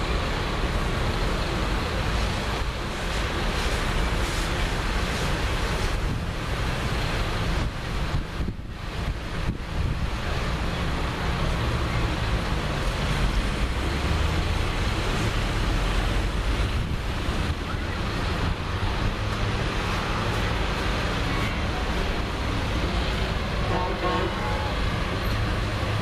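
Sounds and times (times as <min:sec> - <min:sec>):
tractor engines passing: 0:00.0 - 0:26.0
wind buffeting microphone: 0:07.5 - 0:10.2.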